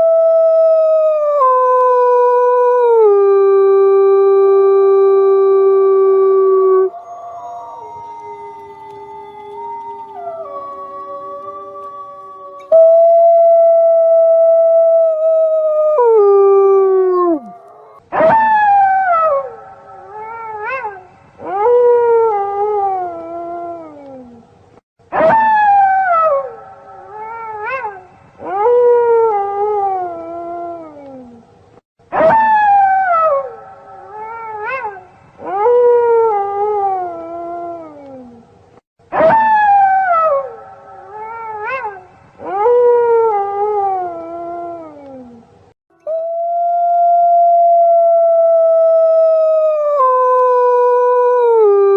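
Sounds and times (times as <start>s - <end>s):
wolf howls: 0.0s - 24.4s, 46.0s - 51.9s.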